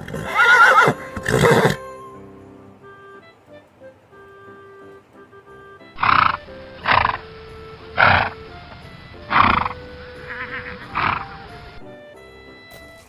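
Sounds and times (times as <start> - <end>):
horse neighing: 0.0 - 1.8, 6.0 - 11.8
background music: 0.0 - 13.0.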